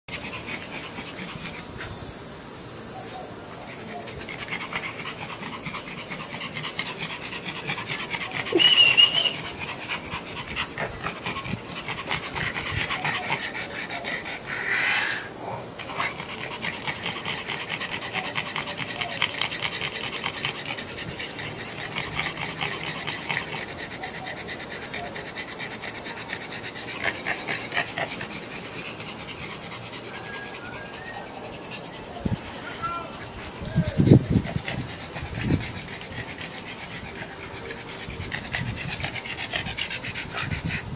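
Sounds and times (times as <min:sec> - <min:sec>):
steady hiss: 0:00.1 - 0:40.9
dogs snoring: 0:04.0 - 0:32.6.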